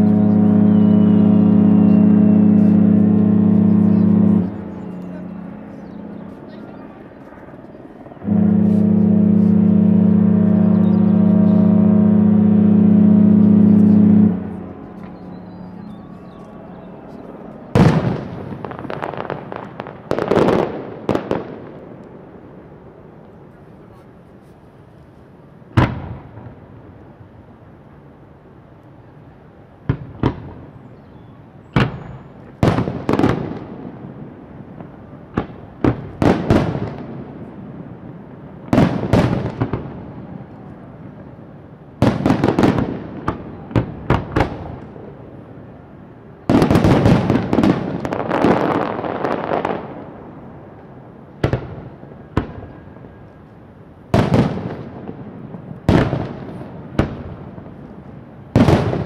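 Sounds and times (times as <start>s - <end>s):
fireworks banging and crackling: 13.4s - 22.2s, 25.7s - 26.6s, 29.8s - 30.8s, 31.7s - 41.4s, 42.0s - 45.2s, 46.4s - 59.0s.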